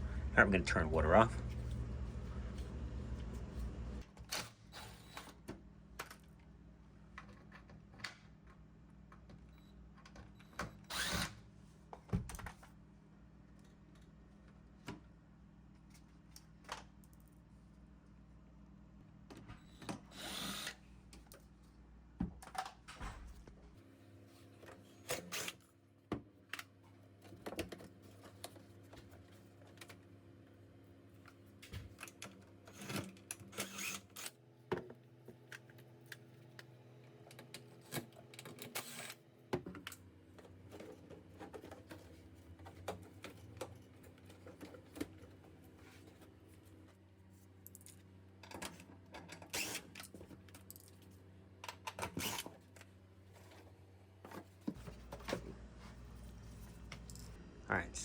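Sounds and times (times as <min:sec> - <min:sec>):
low steady hum: 0:00.0 - 0:04.0, 0:54.7 - 0:58.0.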